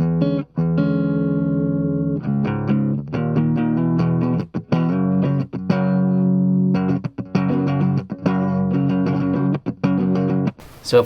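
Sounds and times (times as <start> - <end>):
clean electric guitar picking: 0.0 - 10.6.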